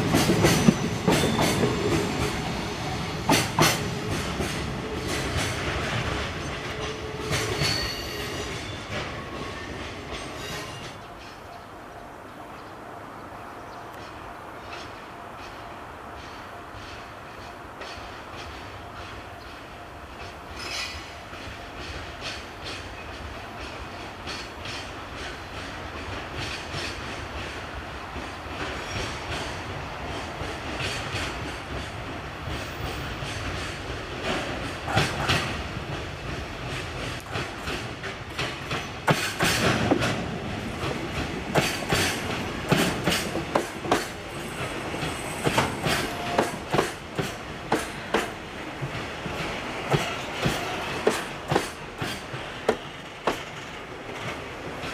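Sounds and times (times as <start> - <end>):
train wheels clanking over joints: 0.0 - 2.5, 3.2 - 11.4, 28.2 - 54.9.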